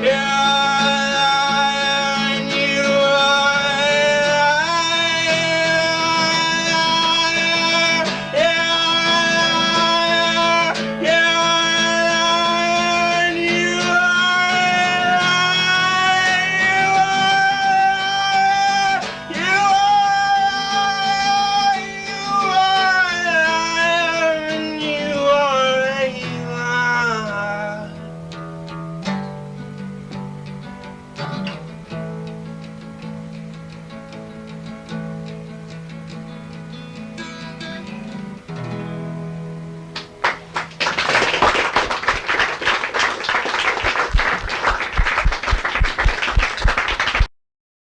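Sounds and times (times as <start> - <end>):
man singing: 0.0 - 28.1
acoustic guitar strumming: 0.0 - 47.3
audience applause: 40.0 - 47.3.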